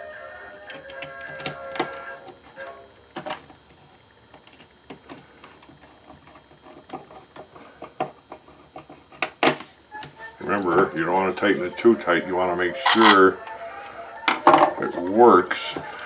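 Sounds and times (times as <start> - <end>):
background music: 9.9 - 16.0.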